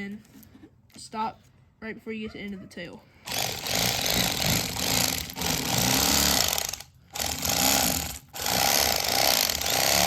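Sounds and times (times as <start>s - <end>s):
electric knife motor running: 3.3s - 10.0s.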